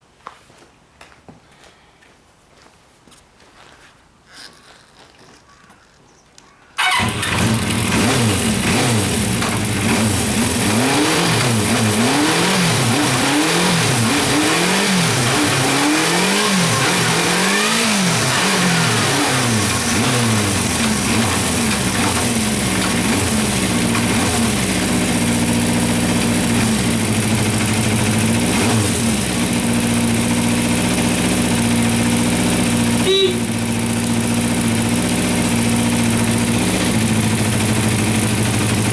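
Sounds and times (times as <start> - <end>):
motorcycle engine revving and idling: 6.8 - 38.9.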